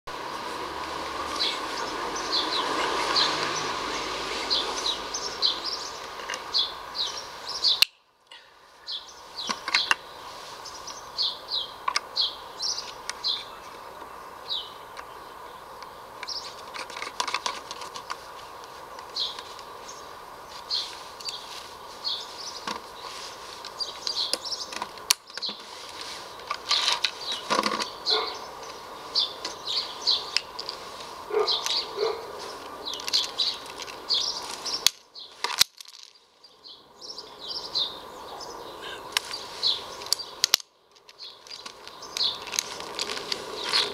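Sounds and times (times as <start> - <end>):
steady background hiss: 0.1 - 43.9
small birds chirping: 0.2 - 43.9.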